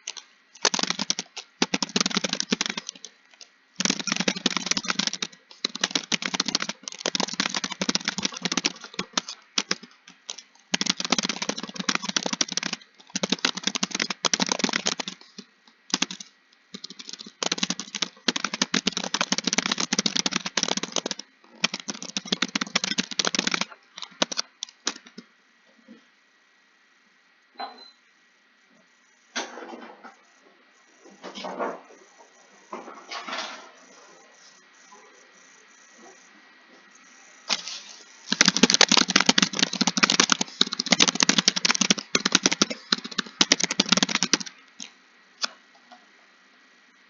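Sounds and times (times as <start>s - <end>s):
fast typing on keyboard: 0.0s - 25.2s, 37.5s - 44.9s.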